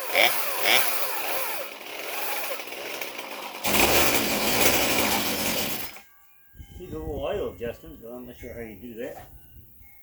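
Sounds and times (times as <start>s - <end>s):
chainsaw engine running: 0.0s - 6.0s.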